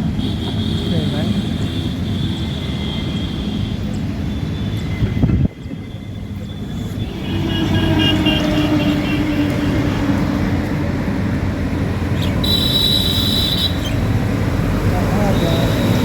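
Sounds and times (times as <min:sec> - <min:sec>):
vehicle rumbling: 0:00.0 - 0:16.0.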